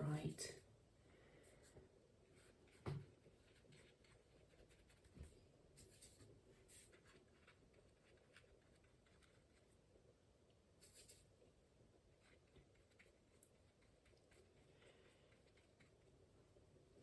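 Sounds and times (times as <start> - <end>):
paintbrush strokes on paper: 1.4 - 9.9, 10.8 - 16.6
soft knock: 2.8 - 3.1.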